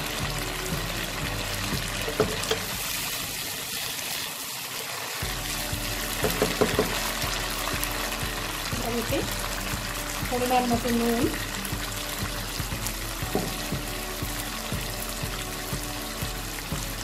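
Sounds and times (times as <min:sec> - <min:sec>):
onions sizzling in hot oil: 0:00.0 - 0:17.0
wooden spatula knocking pan: 0:02.0 - 0:02.7, 0:06.2 - 0:07.2, 0:13.2 - 0:13.8.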